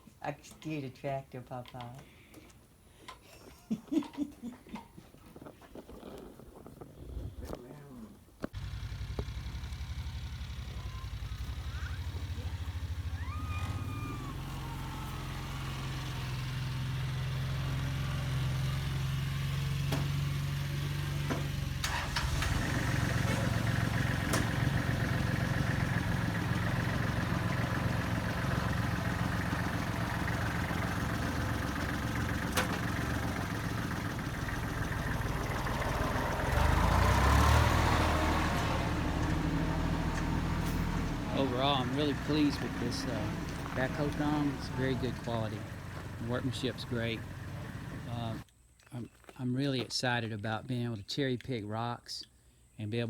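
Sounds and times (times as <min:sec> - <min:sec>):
diesel tractor engine running: 0:08.5 - 0:48.5.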